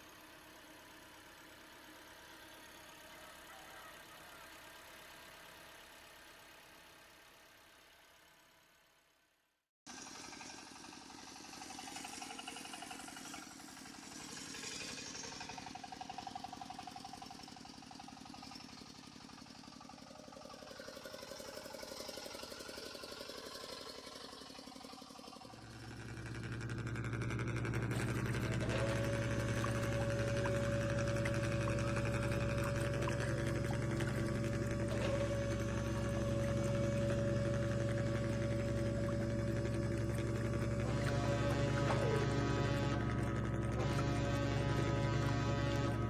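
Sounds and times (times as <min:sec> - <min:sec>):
model truck engines running: 0:00.0 - 0:08.6, 0:09.9 - 0:46.0
steady held tone: 0:27.5 - 0:46.0.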